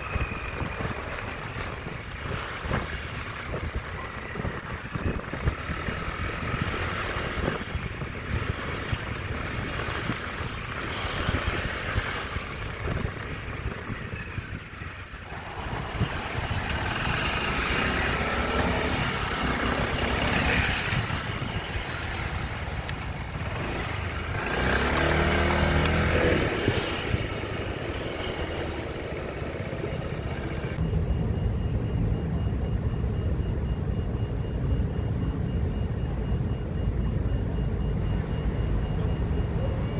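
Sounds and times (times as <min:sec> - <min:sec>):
motorcycle engine running: 0:00.0 - 0:30.8
road and traffic noise: 0:00.0 - 0:39.9.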